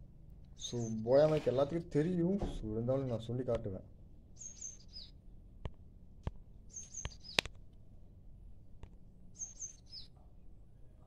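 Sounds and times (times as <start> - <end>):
faint low hum: 0.0 - 11.0
bird calling: 0.5 - 1.6, 4.4 - 5.2, 6.6 - 7.5, 9.4 - 10.2
sharp clicks: 5.6 - 7.6.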